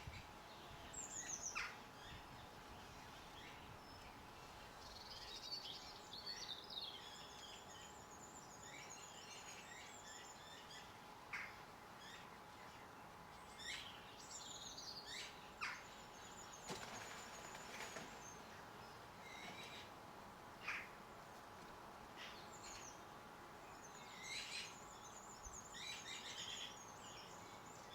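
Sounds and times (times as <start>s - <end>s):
small birds chirping and twittering: 0.0s - 27.9s.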